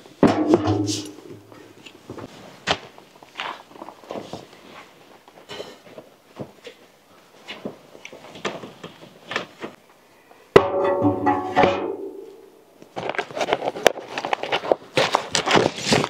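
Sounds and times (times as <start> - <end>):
handling and rustling noises: 0.0 - 9.9, 12.8 - 16.0
crinkling of gear: 12.8 - 16.0.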